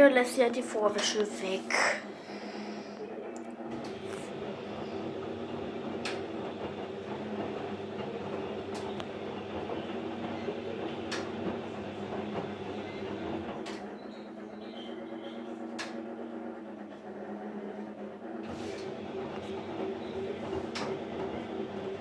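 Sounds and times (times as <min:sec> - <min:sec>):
washing machine drum humming: 0:00.0 - 0:22.0
washing machine clicking: 0:03.7 - 0:14.5, 0:15.6 - 0:16.1, 0:18.4 - 0:22.0.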